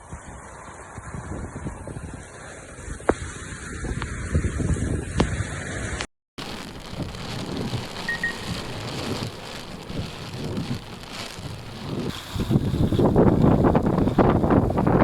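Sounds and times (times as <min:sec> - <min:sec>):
wind noise on microphone: 0:00.0 - 0:15.0
heavy rain falling: 0:06.4 - 0:15.0
sharp drop clicks: 0:08.0 - 0:09.1.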